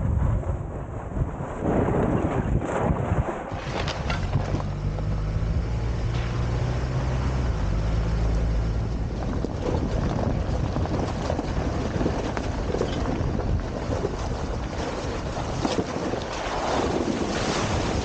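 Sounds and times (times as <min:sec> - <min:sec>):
wind buffeting microphone: 0:00.0 - 0:18.0
vehicle engine hum: 0:03.5 - 0:16.3.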